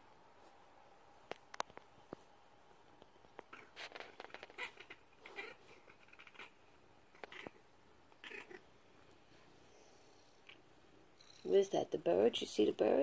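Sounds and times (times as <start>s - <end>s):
cat chattering: 3.5s - 6.6s, 7.2s - 7.6s, 8.2s - 8.6s.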